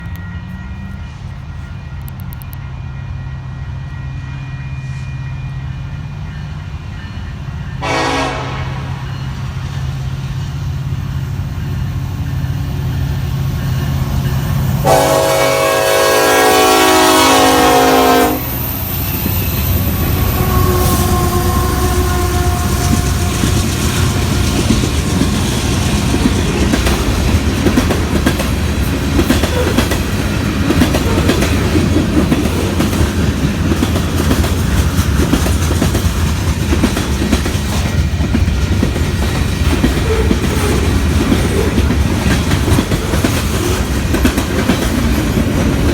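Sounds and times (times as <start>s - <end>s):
locomotive engine drone: 0.0s - 7.8s, 8.9s - 44.2s
rail noise and wheel clatter: 0.0s - 45.9s
train air horn blasts: 7.8s - 9.4s, 14.8s - 18.8s, 19.5s - 24.5s.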